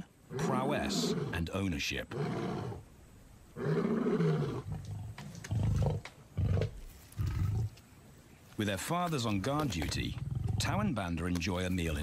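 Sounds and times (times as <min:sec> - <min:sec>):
lions roaring: 0:00.3 - 0:01.4.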